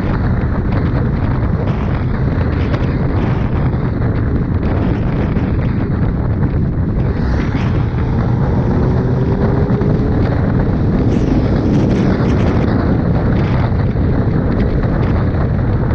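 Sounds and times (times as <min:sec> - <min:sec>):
wind buffeting microphone: 0:00.0 - 0:15.9
faint motorcycle engine: 0:06.5 - 0:12.7.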